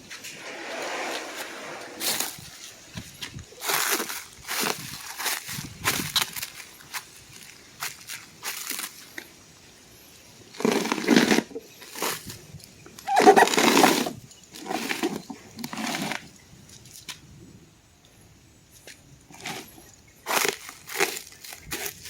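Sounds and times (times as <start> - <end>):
packaging rustling and crumpling: 2.0 - 9.1.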